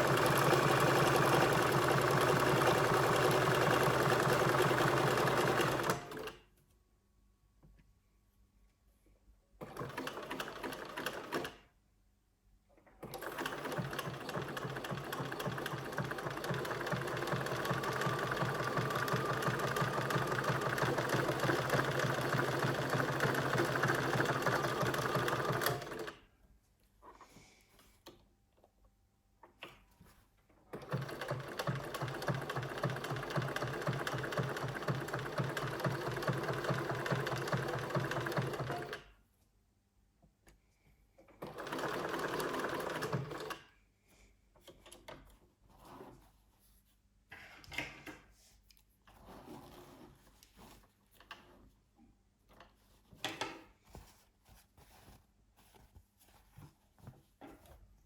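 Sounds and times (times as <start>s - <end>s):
sewing machine stitching: 0.0s - 6.4s, 9.6s - 11.6s, 13.0s - 26.2s, 30.7s - 39.1s, 41.4s - 43.7s.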